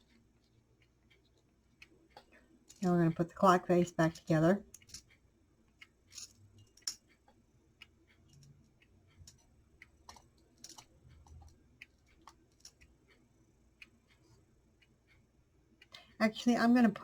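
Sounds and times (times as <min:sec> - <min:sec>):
clicks of small clock parts: 0:03.8 - 0:13.2.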